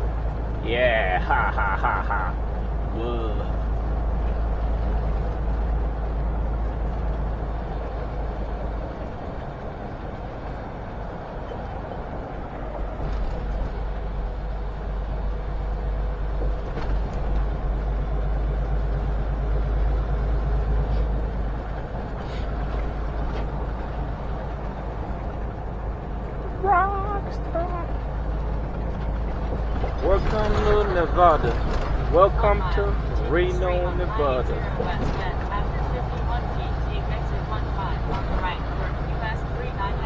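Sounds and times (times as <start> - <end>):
road noise: 0.0 - 40.0
truck diesel engine drone: 0.0 - 40.0.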